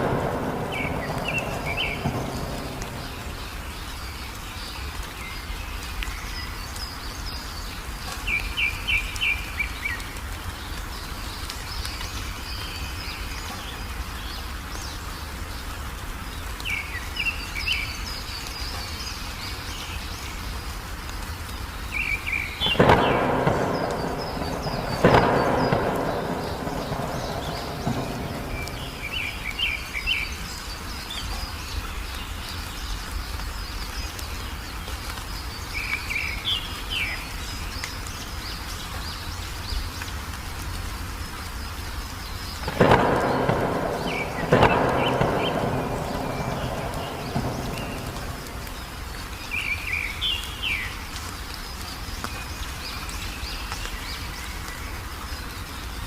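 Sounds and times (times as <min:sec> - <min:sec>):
thunderclaps rumbling: 0:00.0 - 0:04.4, 0:22.6 - 0:30.8, 0:42.6 - 0:50.0
small birds chirping: 0:00.0 - 0:56.0
steady rain: 0:00.0 - 0:56.0.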